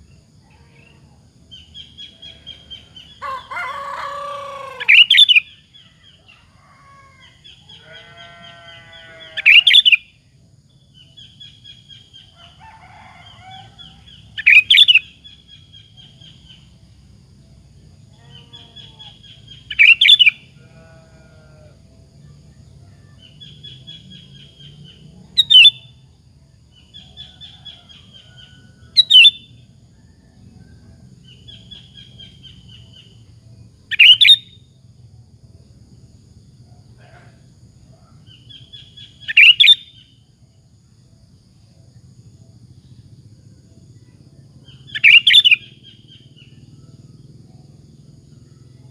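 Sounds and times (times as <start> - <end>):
bird singing sharp phrases: 4.8 - 5.6, 33.9 - 34.5, 44.7 - 46.0.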